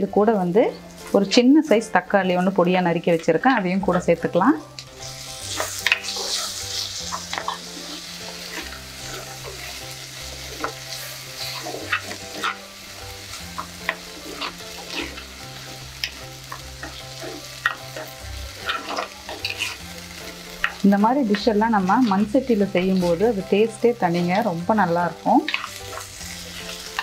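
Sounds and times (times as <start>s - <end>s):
vegetables sizzling in oil: 0.0s - 27.0s.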